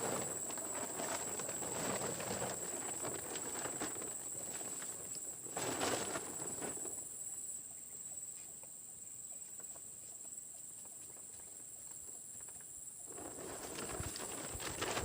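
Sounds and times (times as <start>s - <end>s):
rustling: 0.0s - 7.1s, 12.4s - 15.0s
night insects droning: 0.0s - 15.0s.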